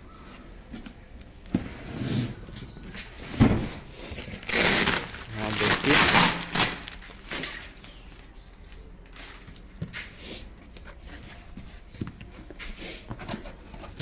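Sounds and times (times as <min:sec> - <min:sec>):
cardboard and wrapping rustling: 0:00.7 - 0:08.4, 0:10.7 - 0:14.0.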